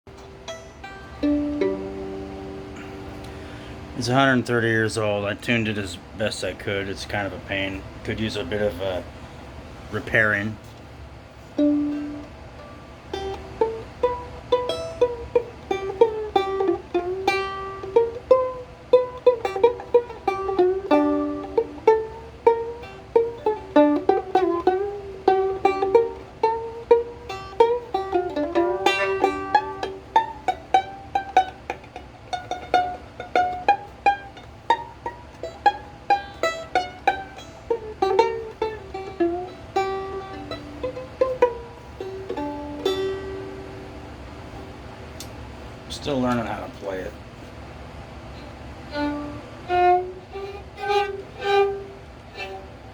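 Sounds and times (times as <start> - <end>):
plucked string instrument melody: 0.1 - 4.3, 11.3 - 44.8, 48.4 - 52.9.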